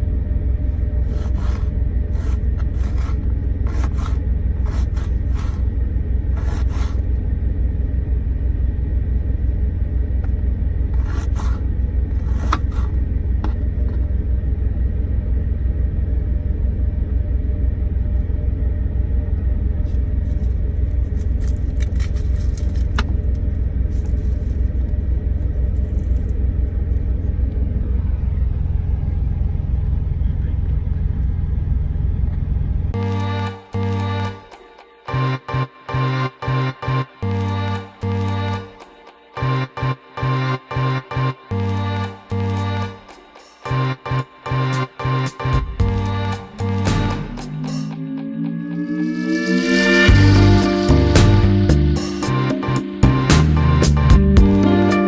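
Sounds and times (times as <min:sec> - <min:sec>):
utensil scraping a pan: 0:01.1 - 0:05.7, 0:06.4 - 0:07.0, 0:11.0 - 0:14.0.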